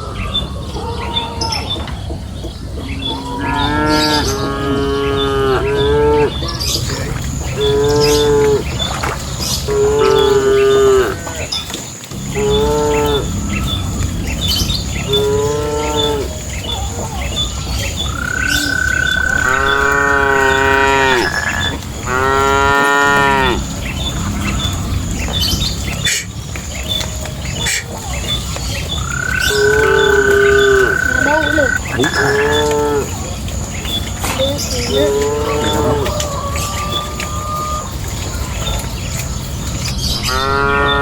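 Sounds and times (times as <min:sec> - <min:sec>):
steady low rumble: 0:00.0 - 0:37.2
cattle mooing: 0:03.4 - 0:06.4, 0:09.7 - 0:11.5, 0:12.1 - 0:17.0, 0:18.1 - 0:26.3, 0:29.1 - 0:33.2, 0:34.9 - 0:36.2, 0:40.3 - 0:41.0.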